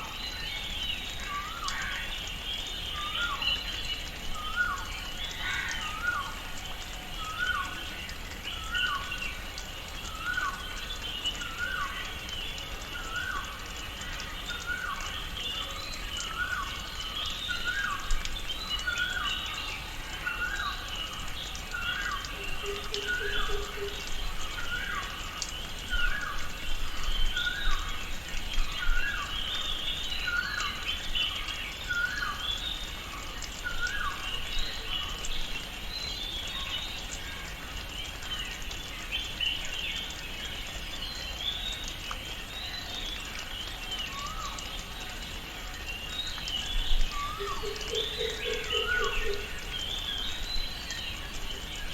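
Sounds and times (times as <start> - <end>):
birds chirping: 37.8 - 51.9.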